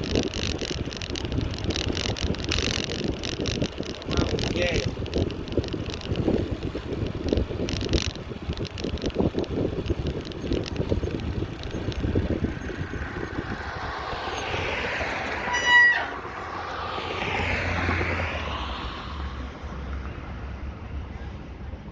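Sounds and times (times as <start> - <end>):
light rattles: 0.0 - 15.3
wind rumble on microphone: 0.0 - 21.9
vehicle passing: 10.8 - 21.8.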